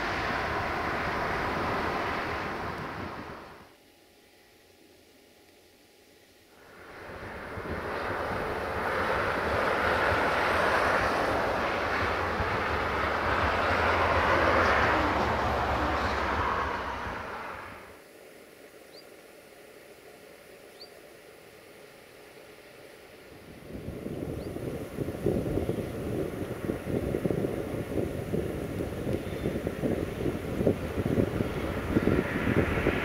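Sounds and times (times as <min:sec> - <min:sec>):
train rumbling past: 0:00.0 - 0:03.7, 0:06.6 - 0:18.0, 0:30.0 - 0:33.0.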